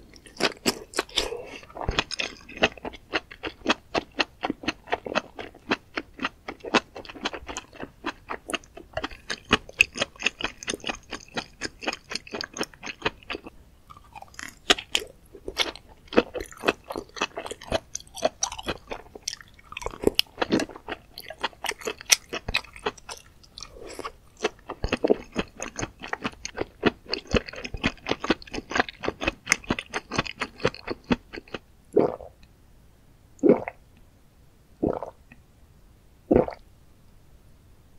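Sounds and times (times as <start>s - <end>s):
close chewing wet crunches: 0.1s - 32.2s
gulps of water swallowed: 32.0s - 32.3s, 33.4s - 33.8s, 34.8s - 35.2s, 36.3s - 36.6s.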